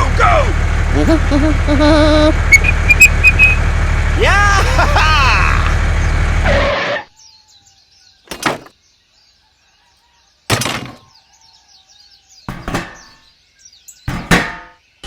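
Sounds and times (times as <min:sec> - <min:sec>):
faint birdsong: 0:02.4 - 0:15.0
knocks and clunks: 0:08.3 - 0:08.8, 0:10.5 - 0:11.1, 0:12.5 - 0:13.2, 0:14.1 - 0:14.8.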